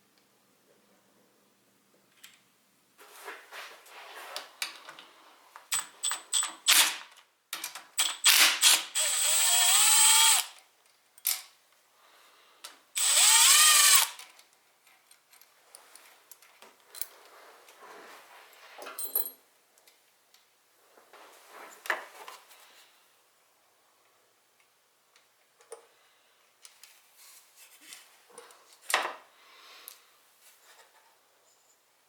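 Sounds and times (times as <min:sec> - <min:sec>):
small electric motor whining: 0:09.0 - 0:10.5, 0:13.0 - 0:14.2.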